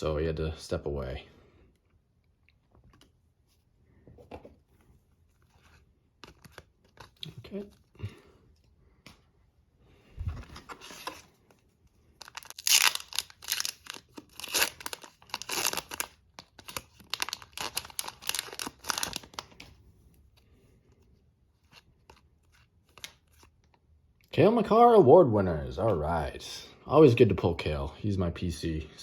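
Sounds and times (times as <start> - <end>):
card pack wrapper tearing and crinkling: 12.2 - 19.6.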